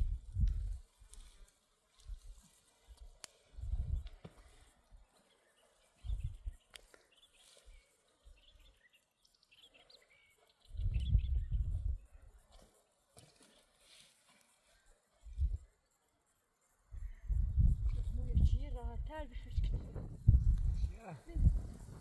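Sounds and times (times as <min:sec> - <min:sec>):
small birds chirping: 0:00.0 - 0:22.0
low muffled rumble: 0:17.3 - 0:22.0.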